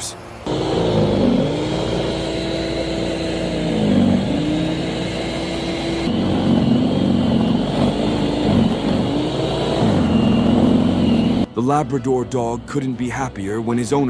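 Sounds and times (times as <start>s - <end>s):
engine running: 0.4s - 11.6s.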